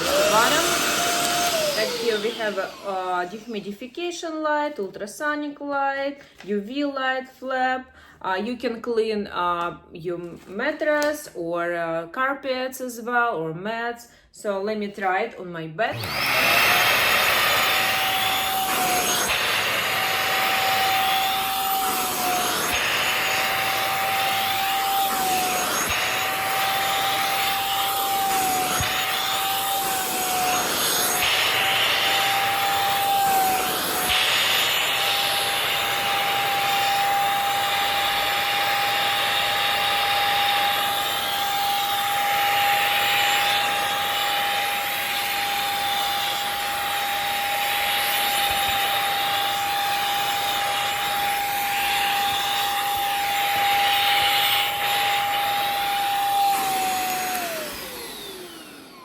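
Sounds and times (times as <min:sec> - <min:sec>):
vacuum cleaner motor whine: 0:00.0 - 0:03.8, 0:15.9 - 0:59.0.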